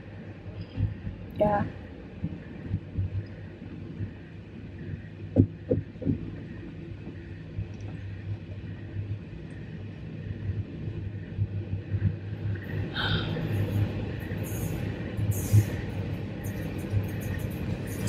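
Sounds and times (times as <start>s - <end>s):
train rumbling on rails: 10.6s - 18.0s.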